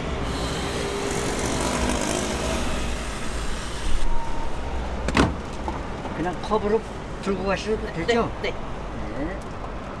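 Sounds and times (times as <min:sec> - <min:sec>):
machine rumbling and hissing: 0:00.0 - 0:05.0.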